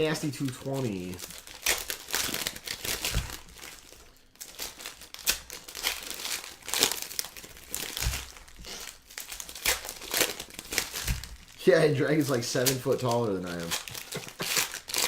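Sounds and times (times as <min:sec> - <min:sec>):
wrappers crinkling and tearing: 0:00.0 - 0:15.0.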